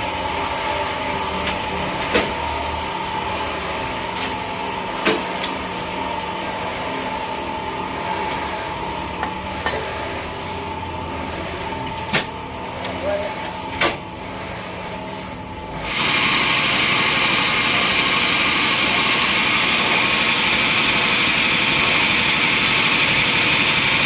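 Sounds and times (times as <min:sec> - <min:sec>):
sawmill machinery running: 0:15.6 - 0:24.0.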